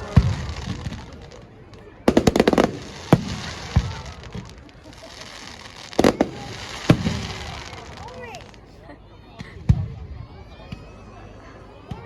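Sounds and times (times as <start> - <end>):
crackling fireworks: 0.0 - 8.8
fireworks bangs: 2.1 - 8.7.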